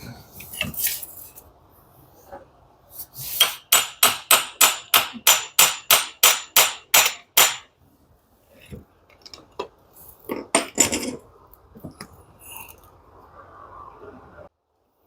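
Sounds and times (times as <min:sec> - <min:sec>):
hammer striking metal: 0:03.4 - 0:07.7.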